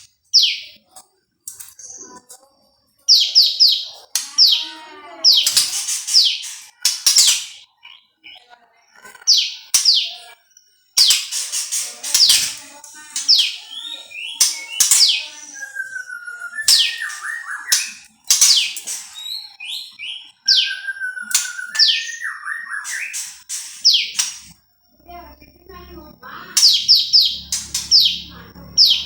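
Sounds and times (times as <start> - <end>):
songbird singing: 3.0 - 29.0.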